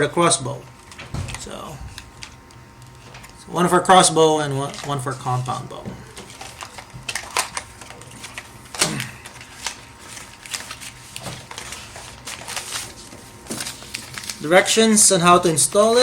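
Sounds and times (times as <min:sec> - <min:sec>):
packaging crinkling: 0:00.8 - 0:03.4, 0:04.6 - 0:14.7.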